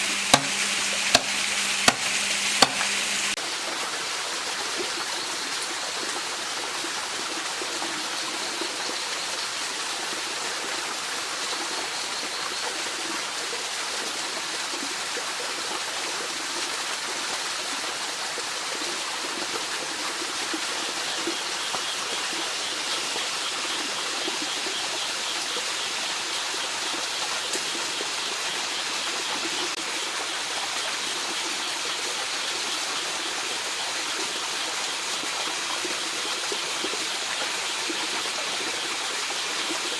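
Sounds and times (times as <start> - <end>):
stream water rushing: 0.0 - 3.4.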